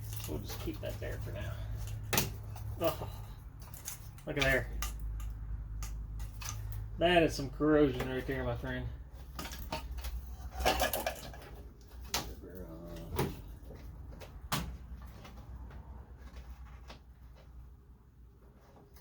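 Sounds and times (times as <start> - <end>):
clicks of car parts and tools: 1.7 - 6.9, 9.2 - 12.4.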